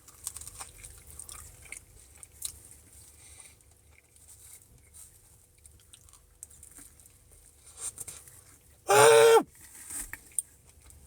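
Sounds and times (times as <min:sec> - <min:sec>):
chewing: 0:00.1 - 0:07.1.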